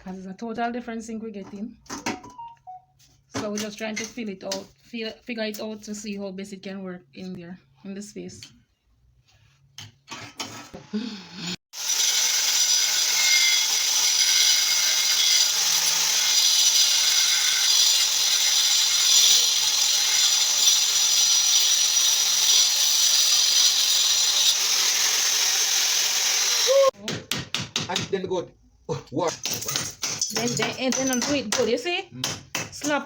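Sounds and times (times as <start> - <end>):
power tool cutting: 11.7 - 27.0.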